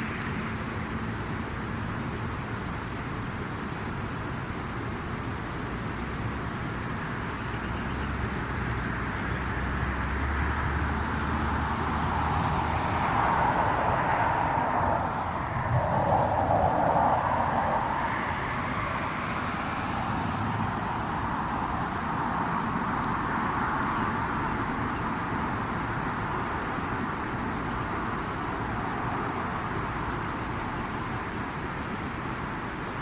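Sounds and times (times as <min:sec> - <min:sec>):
vehicle passing by: 0:08.9 - 0:24.3.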